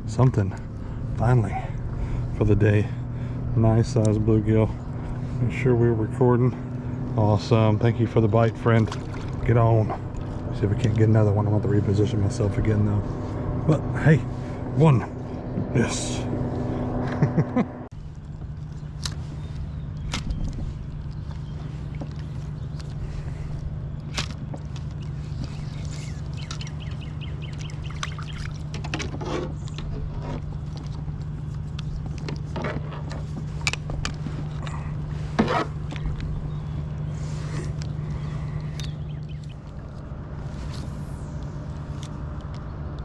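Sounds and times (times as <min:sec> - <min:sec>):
steady low hum: 0:00.0 - 0:43.0
water splashing and dripping: 0:24.1 - 0:29.0.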